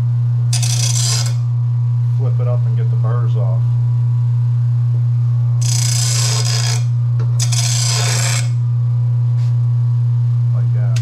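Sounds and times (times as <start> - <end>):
blade grinding scrapes: 0.5 - 1.5, 5.6 - 8.6
grinder motor humming: 0.5 - 3.8, 5.1 - 9.5.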